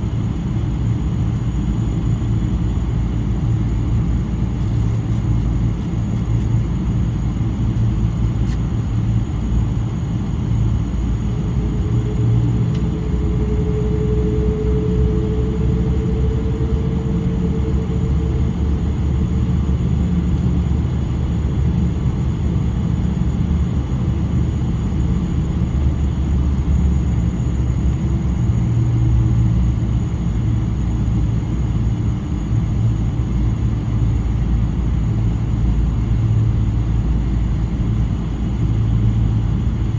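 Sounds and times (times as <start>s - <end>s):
airplane cabin engine rumble: 0.0s - 39.9s
humming tone: 1.5s - 32.0s.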